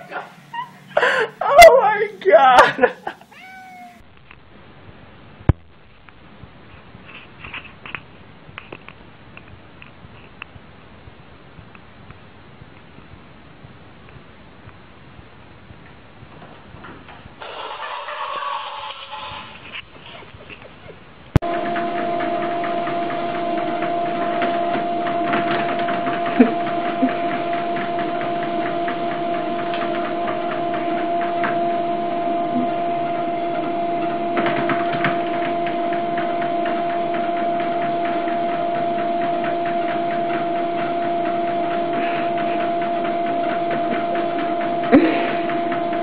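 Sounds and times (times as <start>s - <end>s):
treadmill motor whine: 21.3s - 46.0s.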